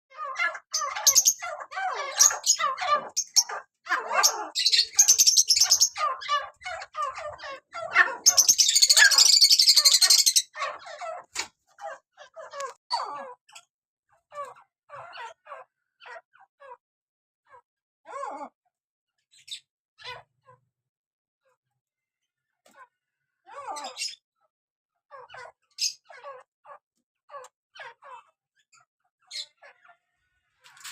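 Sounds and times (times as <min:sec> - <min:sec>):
harsh rasping call: 0:00.1 - 0:11.3
partridges chirping calls: 0:00.1 - 0:13.6, 0:14.3 - 0:16.8, 0:23.5 - 0:24.2, 0:25.1 - 0:30.9.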